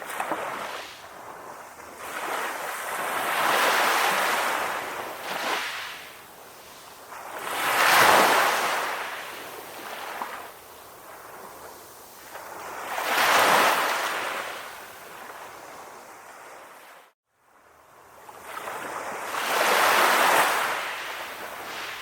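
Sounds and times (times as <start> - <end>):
calm ocean waves washing in: 0.0 - 22.0.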